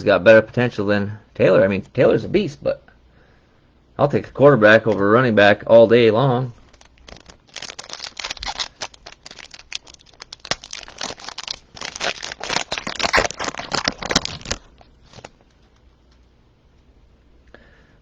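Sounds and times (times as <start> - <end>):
plastic wrapper crinkling and tearing: 6.6 - 15.6.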